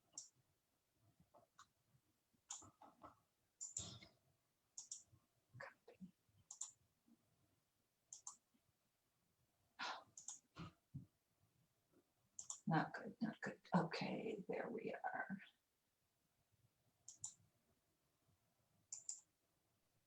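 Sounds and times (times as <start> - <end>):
computer mouse clicks: 0.1 - 0.4, 2.5 - 3.0, 3.6 - 4.1, 4.8 - 5.1, 6.4 - 6.8, 8.1 - 8.4, 10.2 - 10.6, 12.4 - 12.6, 17.0 - 17.4, 18.9 - 19.3.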